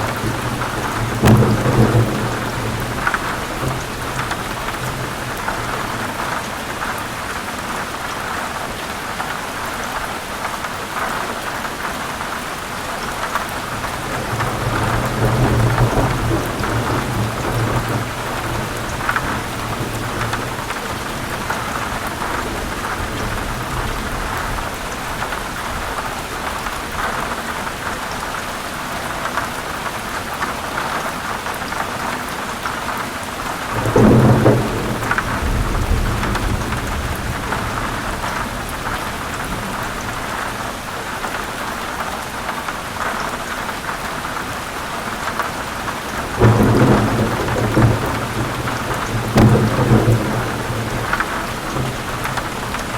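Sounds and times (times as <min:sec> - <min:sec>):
rolling thunder: 0:00.0 - 0:07.3, 0:13.7 - 0:26.6, 0:33.6 - 0:40.7, 0:46.1 - 0:52.9
heavy rain on leaves: 0:00.0 - 0:52.9.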